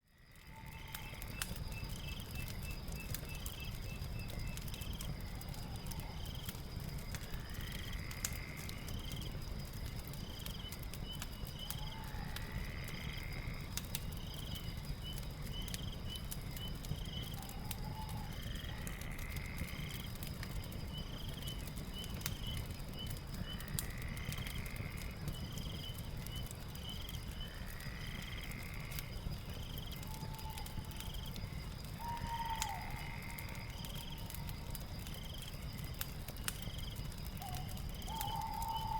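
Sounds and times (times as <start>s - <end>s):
crackling fire: 0.0s - 38.9s
night animal calls: 0.3s - 2.2s, 11.6s - 13.7s, 17.2s - 20.0s, 27.4s - 29.1s, 29.9s - 34.8s, 37.4s - 38.9s.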